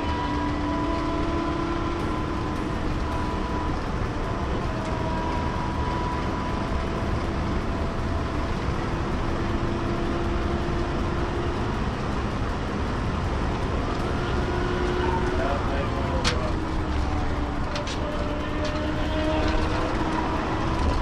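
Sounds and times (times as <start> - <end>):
car road and wind noise: 0.0 - 21.0
faint steady whines: 0.0 - 21.0.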